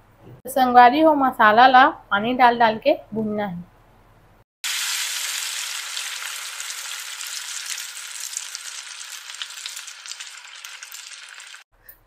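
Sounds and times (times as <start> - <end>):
chicken sizzling in hot oil: 4.6 - 11.7
water poured into hot oil: 4.6 - 11.7.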